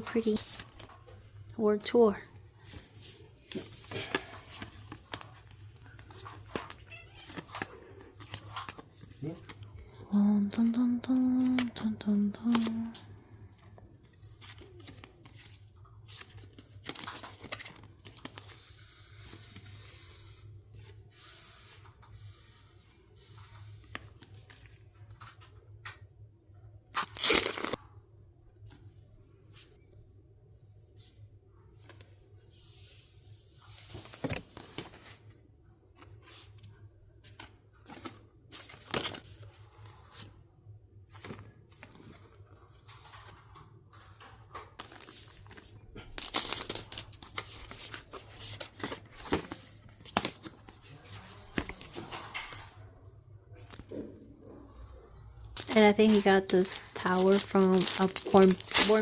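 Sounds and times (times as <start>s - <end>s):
packaging tearing: 27.0s - 27.8s, 46.1s - 48.0s, 55.6s - 59.0s
packaging crinkling: 44.7s - 50.5s, 55.5s - 59.0s.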